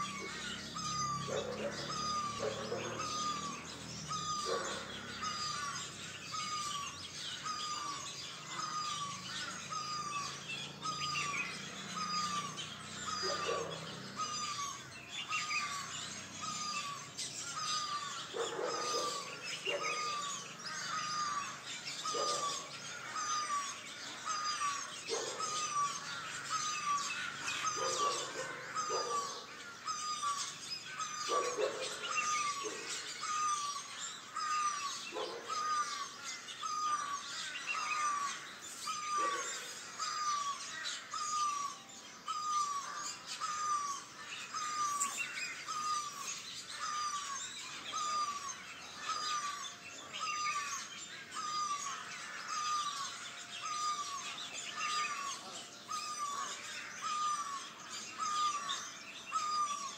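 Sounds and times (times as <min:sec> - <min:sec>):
high bird chirps: 0:00.0 - 0:59.9
lower bird calls: 0:00.0 - 0:59.9.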